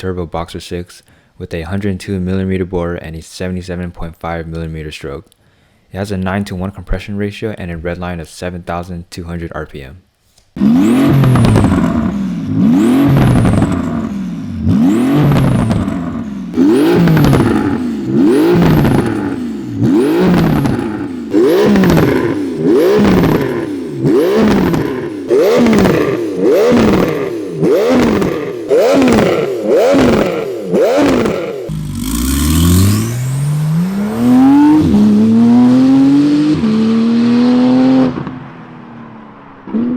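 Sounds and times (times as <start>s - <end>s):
car engine revving: 10.6s - 39.9s.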